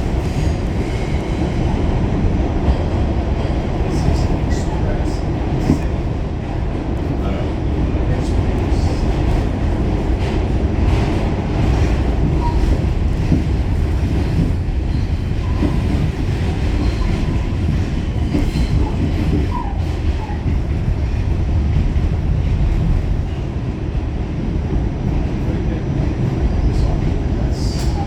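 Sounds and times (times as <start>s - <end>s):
subway car wheels rumbling: 0.0s - 28.0s.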